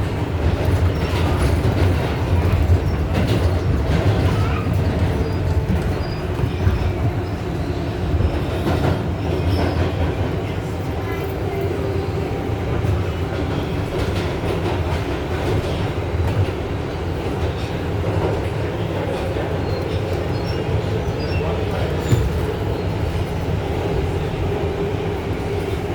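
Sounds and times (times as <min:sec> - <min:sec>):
wheels clicking on rails: 0:00.0 - 0:11.8
subway car rumbling on track: 0:00.0 - 0:25.9.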